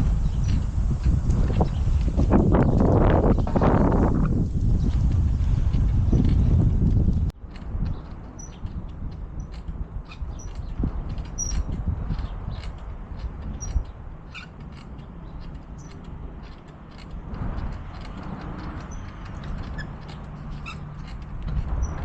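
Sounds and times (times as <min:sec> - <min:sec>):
bicycle clicks and rattles: 0:00.0 - 0:22.0
wind and rolling tyres: 0:00.0 - 0:22.0.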